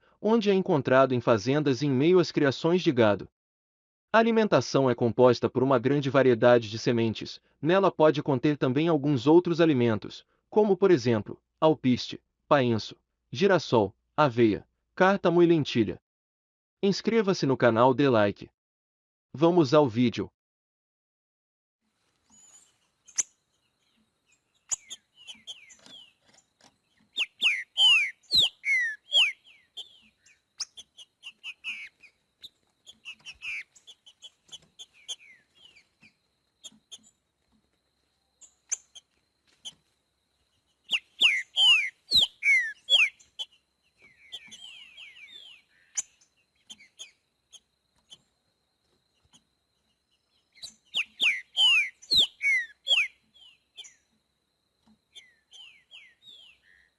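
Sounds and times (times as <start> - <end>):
bird singing whistled notes: 22.4 - 26.2, 26.9 - 37.2, 40.8 - 47.2, 50.0 - 54.1, 55.1 - 56.9.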